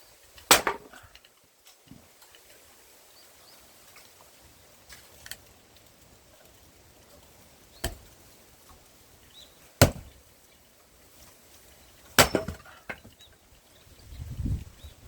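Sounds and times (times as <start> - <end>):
axe chopping wood: 0.5 - 1.1, 7.8 - 8.1, 9.8 - 10.2, 12.1 - 13.1.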